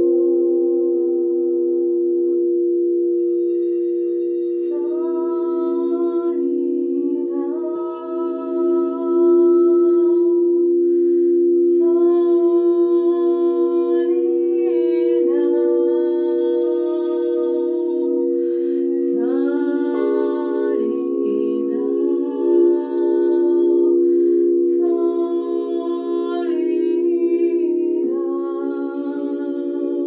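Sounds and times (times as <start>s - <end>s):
person singing long gliding notes: 0.0s - 2.4s, 3.2s - 30.0s
steady held drone: 0.0s - 30.0s
person breathing in: 10.8s - 11.6s, 18.2s - 19.1s, 23.9s - 24.7s.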